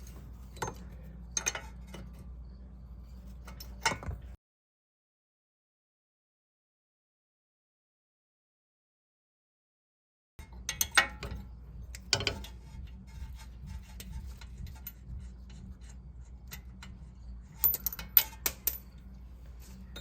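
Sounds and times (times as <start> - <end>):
steady low hum: 0.0 - 4.4, 10.4 - 20.0
metal clinks: 17.6 - 19.1, 19.8 - 20.0.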